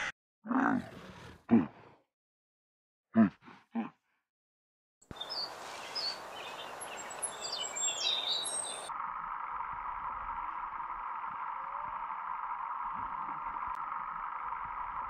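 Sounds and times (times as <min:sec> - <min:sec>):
outdoor background hiss: 0:05.1 - 0:08.9
birds chirping: 0:05.1 - 0:15.0
steady hum: 0:08.4 - 0:15.0.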